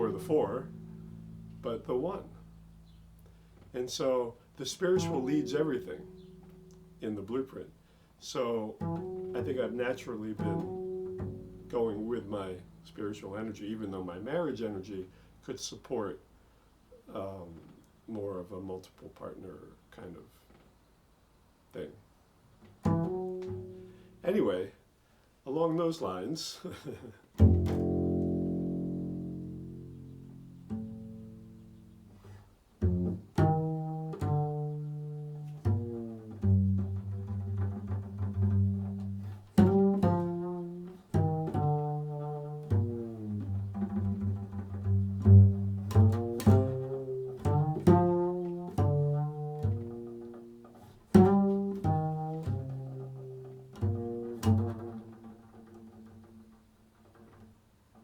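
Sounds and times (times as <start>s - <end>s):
low plucked string instrument: 0.0s - 15.5s, 22.6s - 24.5s, 27.4s - 57.6s.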